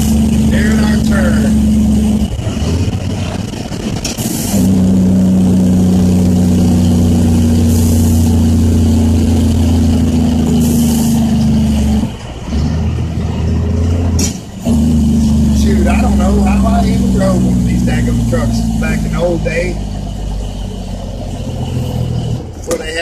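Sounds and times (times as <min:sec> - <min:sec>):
truck engine brake droning: 0:00.0 - 0:22.9
air hisses: 0:04.2 - 0:04.8, 0:07.6 - 0:08.4, 0:10.6 - 0:11.3.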